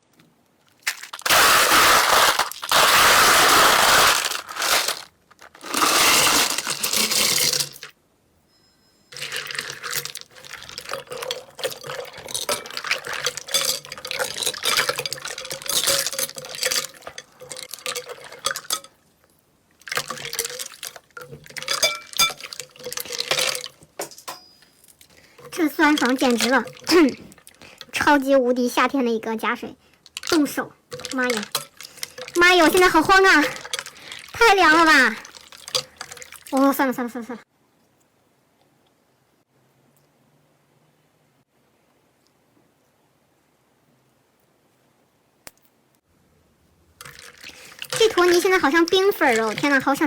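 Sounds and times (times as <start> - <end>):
slime squishing and crackling: 0.7 - 7.1, 30.1 - 36.7
water pouring: 0.8 - 7.9, 9.2 - 18.9, 19.8 - 23.8, 25.0 - 28.0, 30.0 - 36.9, 47.0 - 50.0.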